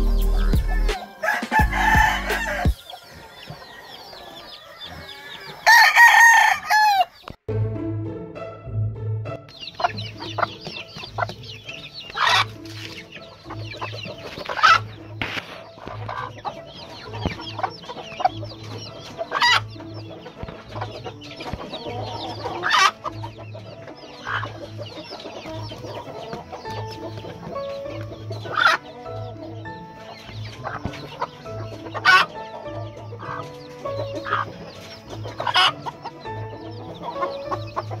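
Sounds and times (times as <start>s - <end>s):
background music with beat: 0.0s - 3.0s, 7.5s - 38.0s
chickens clucking and calling: 0.0s - 7.4s, 9.2s - 38.0s.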